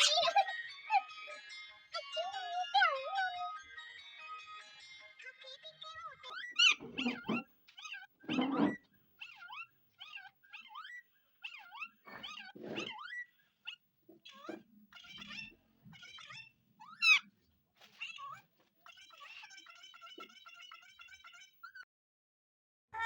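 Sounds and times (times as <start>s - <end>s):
parrot squawk: 0.0s - 0.4s, 6.2s - 17.3s, 17.9s - 21.8s
parrot chirping and whistling: 6.4s - 13.8s, 16.2s - 17.3s.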